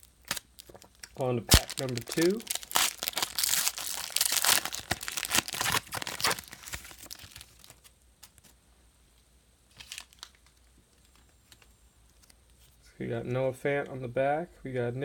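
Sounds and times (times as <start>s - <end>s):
card pack wrapper tearing and crinkling: 0.0s - 8.5s, 9.7s - 12.4s.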